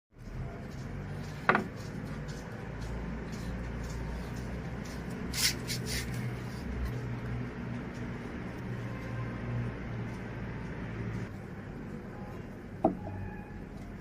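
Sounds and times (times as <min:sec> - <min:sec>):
short scraping sounds: 0:03.3 - 0:06.9.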